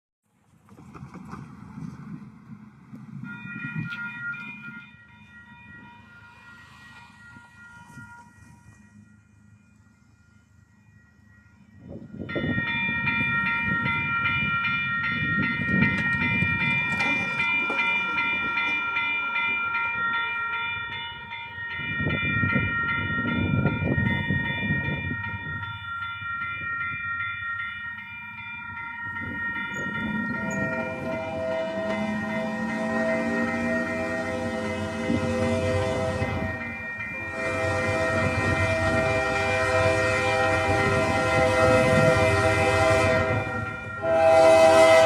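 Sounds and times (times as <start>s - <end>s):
rumble of passing train: 0.3s - 45.0s
locomotive air horn: 30.5s - 45.0s.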